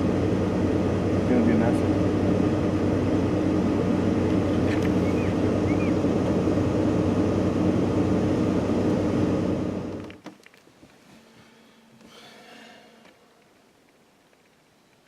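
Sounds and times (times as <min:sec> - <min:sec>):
vehicle engine humming: 0:00.0 - 0:10.2.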